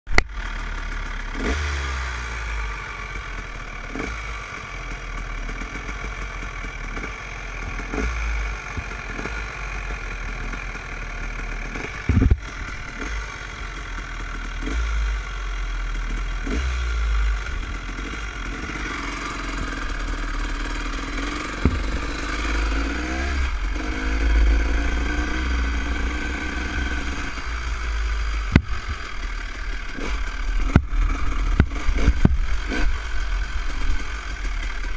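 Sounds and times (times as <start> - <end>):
dirt bike engine revving: 0.3 - 34.9
knocks from rough ground: 11.7 - 13.0, 20.8 - 23.4, 28.4 - 29.2, 29.9 - 33.0.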